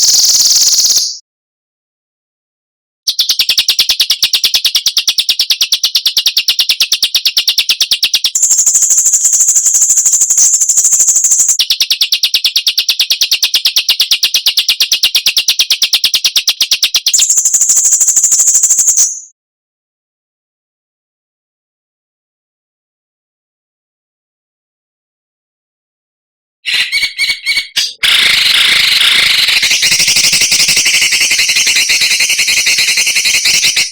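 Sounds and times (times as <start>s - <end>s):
songbird trill: 0.0s - 1.2s, 3.1s - 19.3s, 26.7s - 33.9s.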